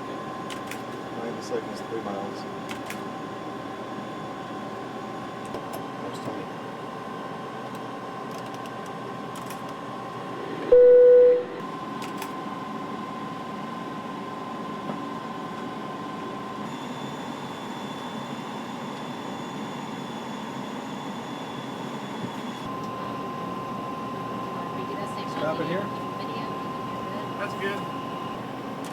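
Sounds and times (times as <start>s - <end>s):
cockpit airflow hum: 0.1s - 16.4s
steady tone: 9.9s - 11.6s
loud beep: 10.7s - 11.6s.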